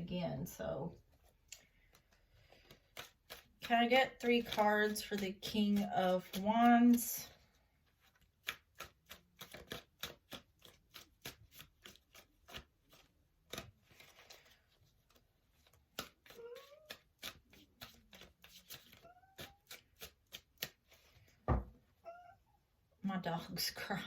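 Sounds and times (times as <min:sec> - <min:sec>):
cards being shuffled: 0:01.1 - 0:07.1, 0:07.8 - 0:21.4.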